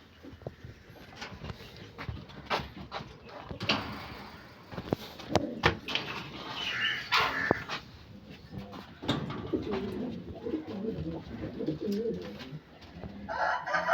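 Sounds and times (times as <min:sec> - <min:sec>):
chicken calling: 0:06.4 - 0:07.8.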